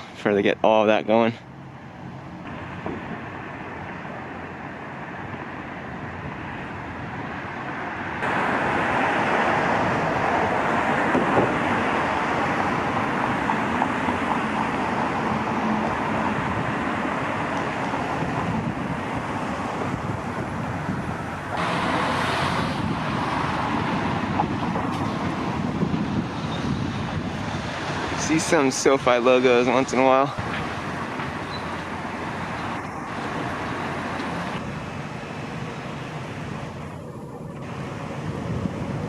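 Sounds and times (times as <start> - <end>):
road traffic: 0.0 - 39.0.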